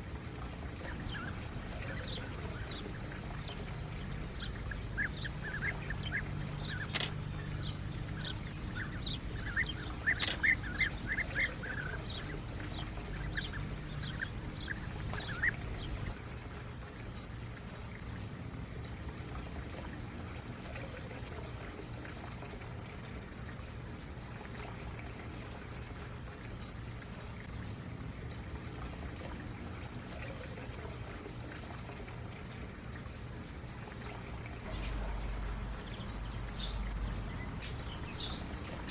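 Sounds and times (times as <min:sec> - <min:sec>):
stream running: 0:00.0 - 0:38.9
small birds chirping: 0:00.8 - 0:16.2, 0:34.6 - 0:38.9
sharp clicks: 0:06.6 - 0:07.4, 0:09.9 - 0:11.5.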